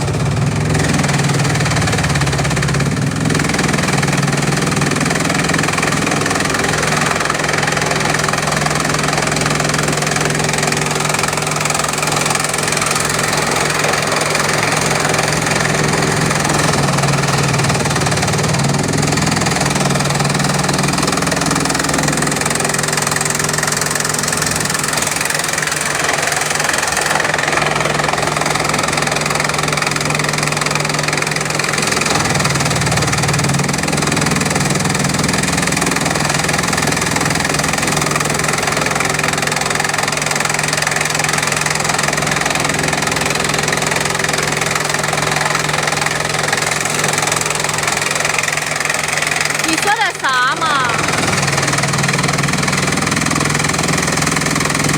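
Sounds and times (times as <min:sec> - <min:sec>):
chipping machine chipping bamboo: 0:00.0 - 0:54.9.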